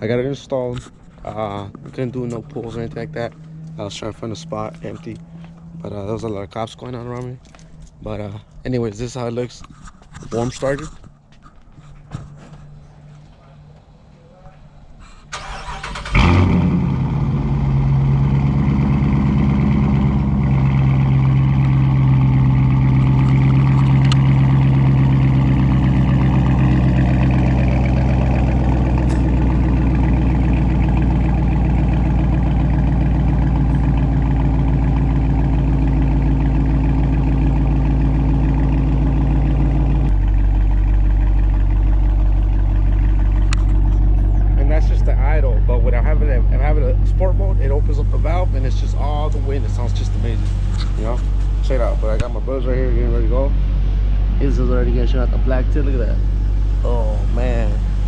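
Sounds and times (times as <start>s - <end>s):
car engine starting and idling: 0.0s - 58.0s.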